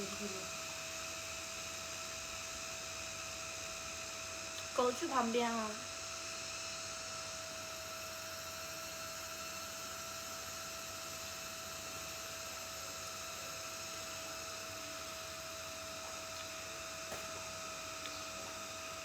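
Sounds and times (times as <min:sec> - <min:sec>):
constant mid-pitched tone: 0:00.0 - 0:00.6, 0:04.6 - 0:05.9
electrical hum and hiss: 0:00.0 - 0:19.0.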